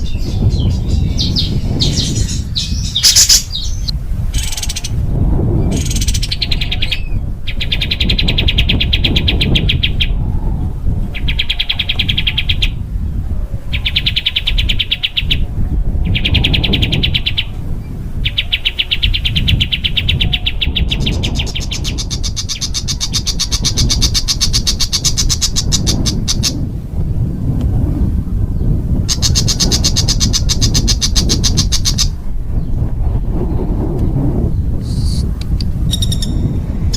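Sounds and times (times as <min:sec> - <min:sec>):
songbird trilling: 0:00.0 - 0:05.0, 0:18.2 - 0:26.6, 0:29.1 - 0:32.2, 0:34.8 - 0:36.6.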